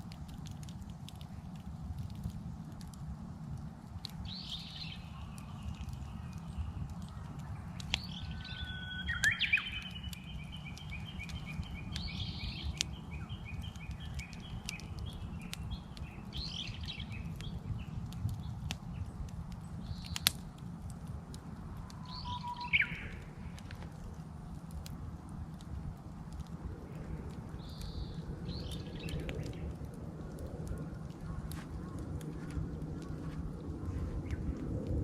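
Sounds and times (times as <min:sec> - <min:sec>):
wood fire crackling and popping: 0:00.0 - 0:35.0
bush warbler singing: 0:04.2 - 0:20.3, 0:22.0 - 0:23.6, 0:27.6 - 0:29.7
other birds chirping: 0:04.3 - 0:18.6, 0:22.0 - 0:23.3.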